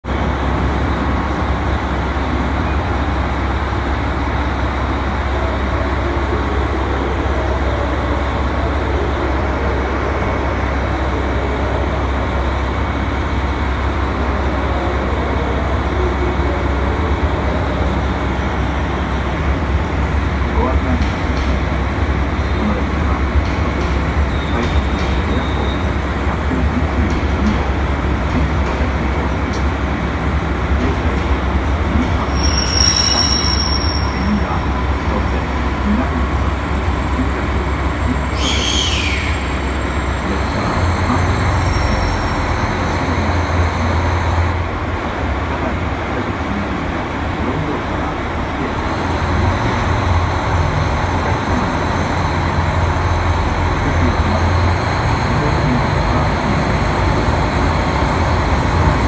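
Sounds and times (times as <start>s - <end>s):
train wheels rumbling: 0.0s - 59.0s
brief high tone: 32.3s - 34.5s.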